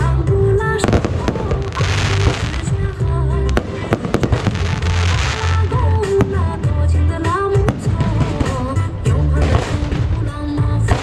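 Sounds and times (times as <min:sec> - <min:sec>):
music with heavy bass beat: 0:00.0 - 0:11.0
fireworks bangs: 0:00.8 - 0:11.0
fireworks crackling hiss: 0:00.9 - 0:02.9, 0:03.5 - 0:06.5.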